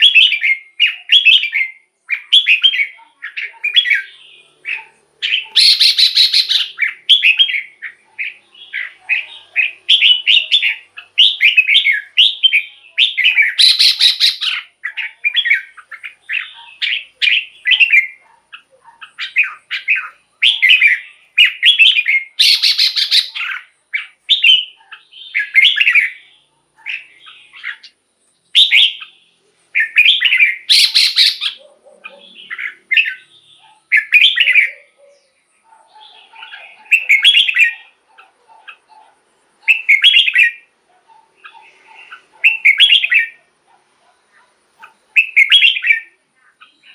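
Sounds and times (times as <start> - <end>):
harsh rasping bird call: 0.0 - 18.2, 19.1 - 28.0, 28.6 - 35.0
bird warbling song: 0.0 - 43.5, 44.8 - 46.9.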